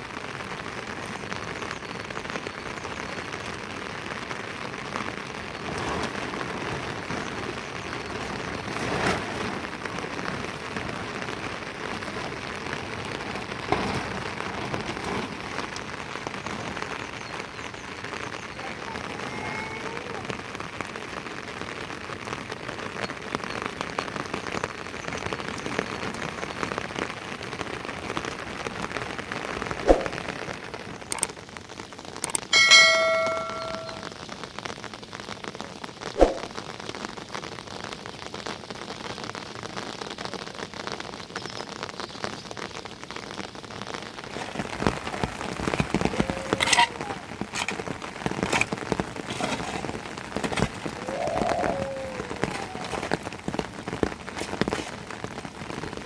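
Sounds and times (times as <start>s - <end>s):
rain falling: 0.0s - 56.0s
brief ringing tone: 32.6s - 34.1s.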